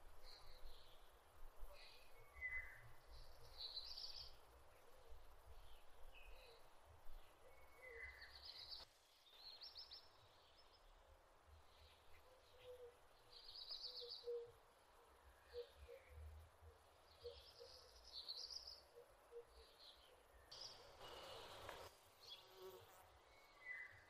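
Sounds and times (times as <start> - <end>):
faint birds chirping: 0.0 - 24.0.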